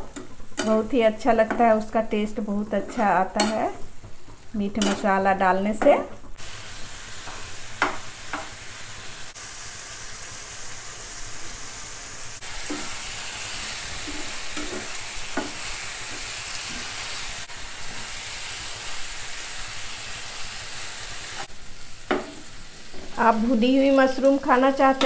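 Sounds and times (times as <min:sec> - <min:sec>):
spoon knocking and scraping a pan: 0:00.0 - 0:01.9, 0:02.8 - 0:06.4, 0:07.2 - 0:08.6, 0:12.6 - 0:17.0, 0:22.1 - 0:23.3
mushrooms sizzling in hot oil: 0:00.0 - 0:25.0.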